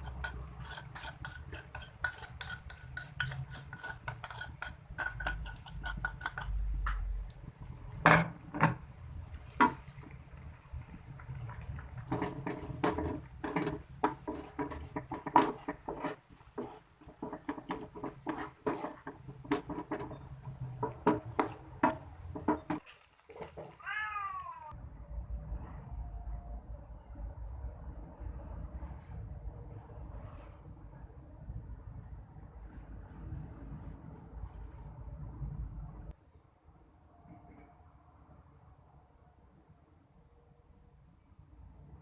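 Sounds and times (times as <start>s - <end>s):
utensil clinking in cookware: 0.0s - 7.0s.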